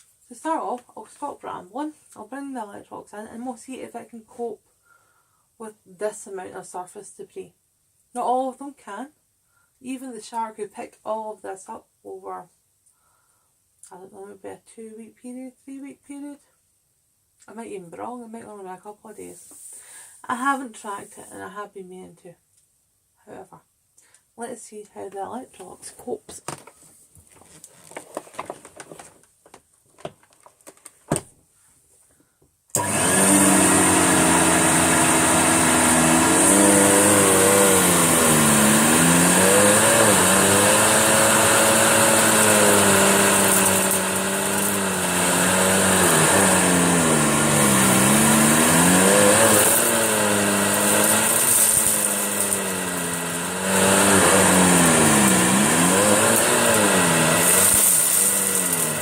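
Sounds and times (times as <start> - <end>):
vacuum cleaner running: 32.7 - 59.0.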